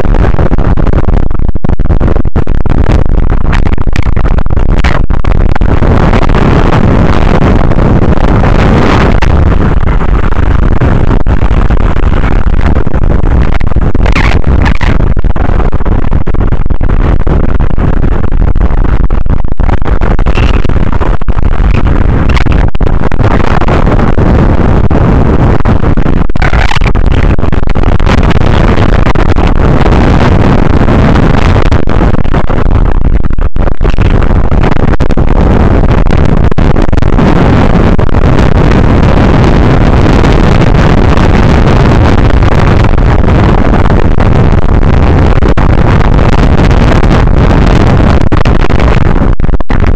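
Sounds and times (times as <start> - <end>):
strong wind buffeting microphone: 0.0 - 49.9.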